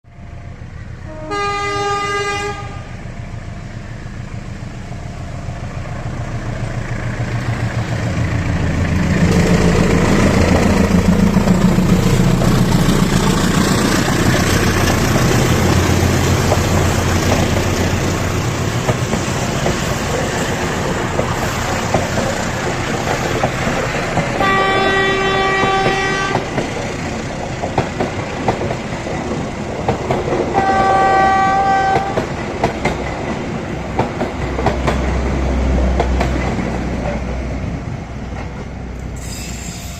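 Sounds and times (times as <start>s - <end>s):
train rumble and wheel clatter: 0.1s - 39.9s
train horn blast: 1.0s - 3.0s, 24.4s - 26.5s, 30.5s - 32.2s.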